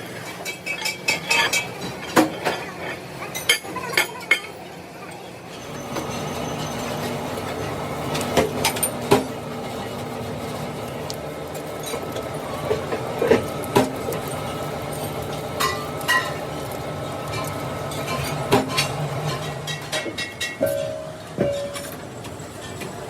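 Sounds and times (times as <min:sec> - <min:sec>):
steel workpieces clanking: 0:05.5 - 0:23.0
machine hum: 0:05.6 - 0:23.0.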